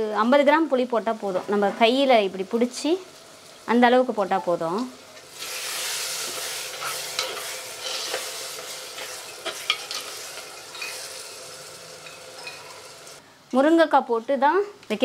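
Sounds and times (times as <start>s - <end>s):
vegetables sizzling in a clay pot: 0.0s - 15.0s
spoon clinking and scraping pot: 6.2s - 11.3s, 12.0s - 13.2s.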